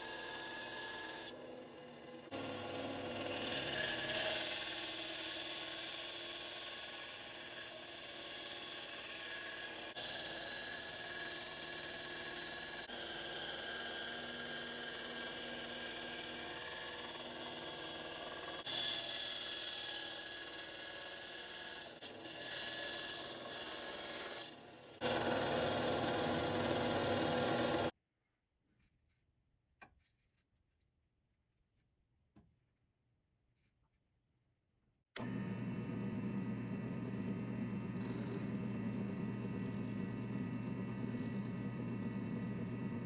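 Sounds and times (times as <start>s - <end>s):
power tool grinding steel: 0.0s - 28.0s
faint motor whine: 35.2s - 43.0s.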